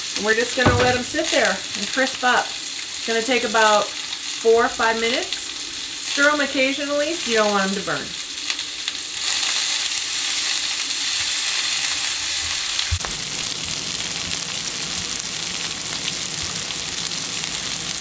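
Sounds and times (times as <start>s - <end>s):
brief low thump: 0.6s - 1.8s
vegetables sizzling in oil: 0.6s - 18.0s.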